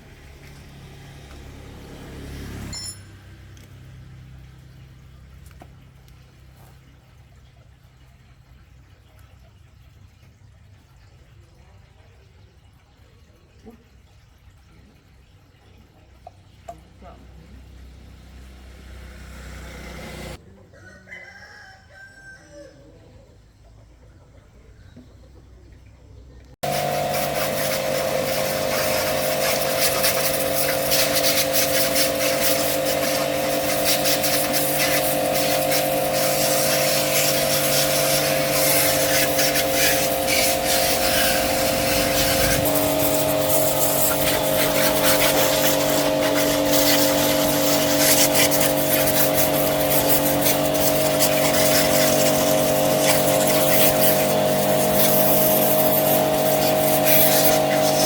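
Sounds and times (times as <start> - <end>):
motorcycle engine running: 19.4 - 20.4, 26.6 - 58.0.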